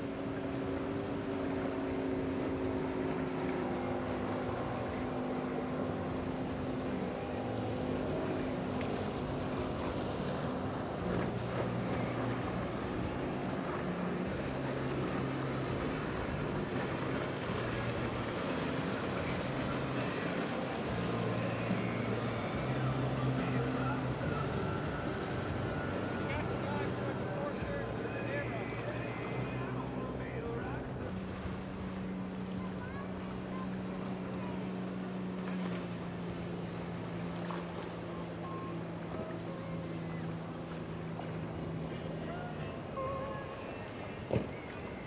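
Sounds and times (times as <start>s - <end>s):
low engine hum: 0.0s - 45.0s
motorboat engines passing: 0.0s - 45.0s
wind: 0.0s - 45.0s.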